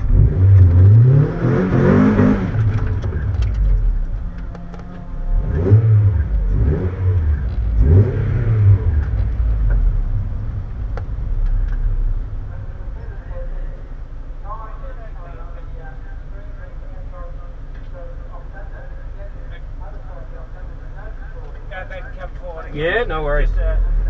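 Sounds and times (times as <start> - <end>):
car engine revving: 0.0 - 14.1.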